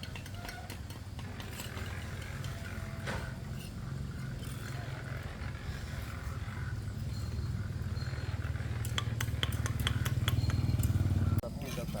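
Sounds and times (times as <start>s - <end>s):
motor running with pulsing rumble: 0.0s - 11.4s.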